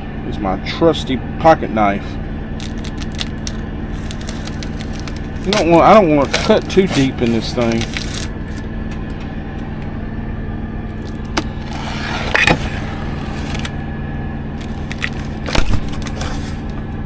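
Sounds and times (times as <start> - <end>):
truck engine idling: 0.0 - 17.0
knife cutting cardboard: 2.6 - 8.6, 11.0 - 13.8, 14.6 - 16.9.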